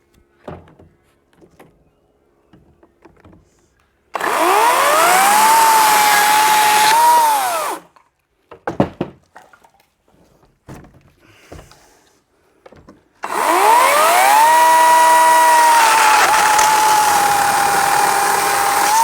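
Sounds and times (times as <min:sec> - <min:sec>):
chainsaw running: 0:04.2 - 0:07.8, 0:13.2 - 0:19.0.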